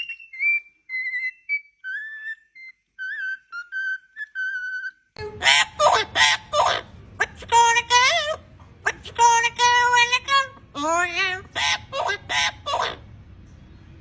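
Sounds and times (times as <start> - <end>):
parrot whistling a tune: 0.0 - 6.5
rough parrot vocalisation: 3.1 - 13.1.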